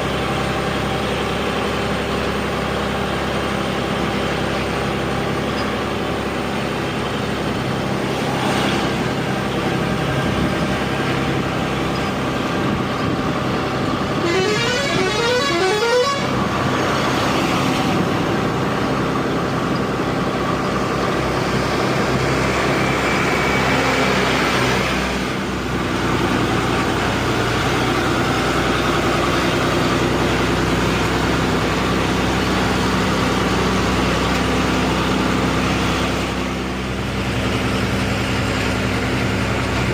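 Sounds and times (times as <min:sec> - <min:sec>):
truck engine running: 0:00.0 - 0:39.9
multi-note horn: 0:14.2 - 0:16.5.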